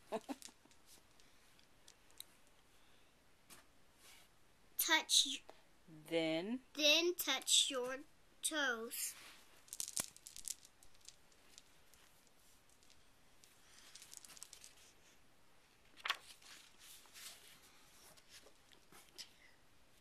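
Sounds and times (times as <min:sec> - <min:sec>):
faint rustling: 0:09.0 - 0:19.6.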